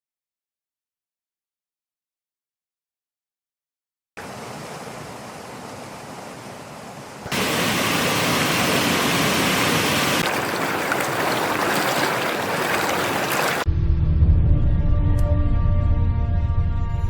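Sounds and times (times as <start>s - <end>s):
running water rushing: 4.2s - 13.7s.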